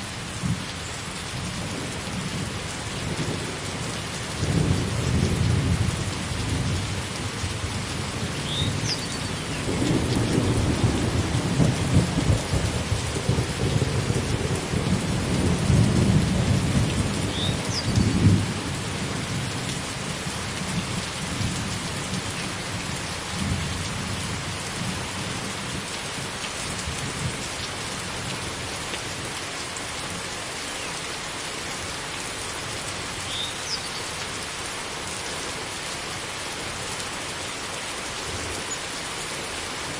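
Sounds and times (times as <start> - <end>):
heavy rain: 0.0 - 39.9
rolling thunder: 9.6 - 18.6.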